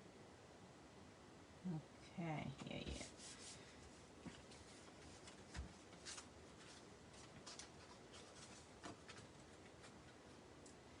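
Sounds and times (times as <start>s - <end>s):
paper materials clicking and rustling: 4.4s - 10.8s.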